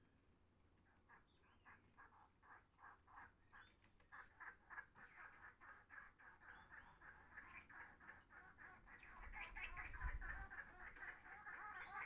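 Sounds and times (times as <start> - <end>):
faint bird calls: 0.8 - 12.0.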